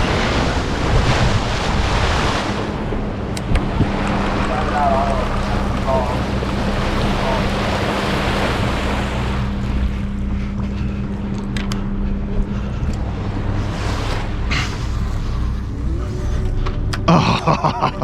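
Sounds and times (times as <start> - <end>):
wind on microphone: 0.0 - 17.1
boat engine drone: 0.0 - 18.0
sea wash: 0.0 - 18.0
steady hum: 0.0 - 18.0.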